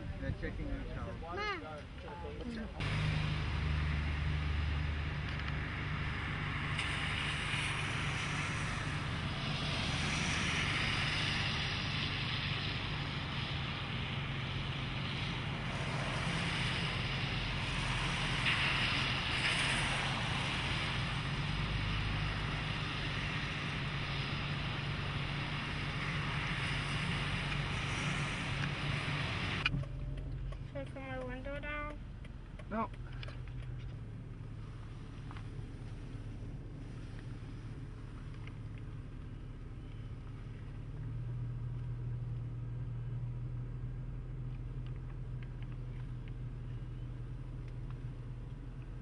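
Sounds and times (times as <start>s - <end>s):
car engine running low: 0.0s - 49.0s
rushing hiss: 5.7s - 29.6s.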